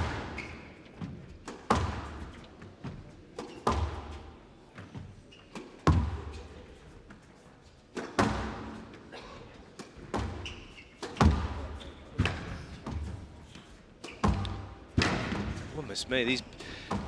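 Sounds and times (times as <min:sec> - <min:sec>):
squash ball cracks: 0:11.0 - 0:11.6, 0:14.0 - 0:15.6.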